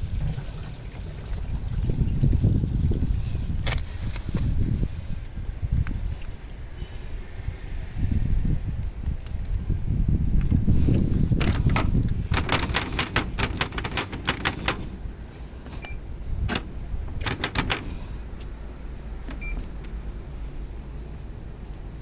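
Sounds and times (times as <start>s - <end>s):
sharp clicks and rattles: 10.4s - 18.5s.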